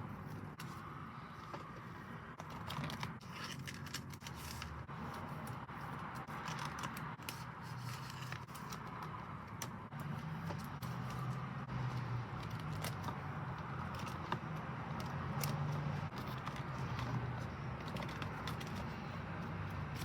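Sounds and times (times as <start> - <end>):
packaging crinkling and unwrapping: 2.4 - 9.1.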